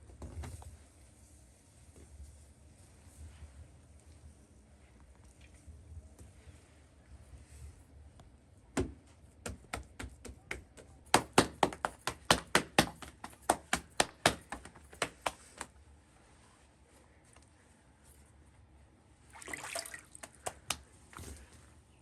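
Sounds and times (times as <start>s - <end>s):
sharp knocks: 8.8s - 15.6s.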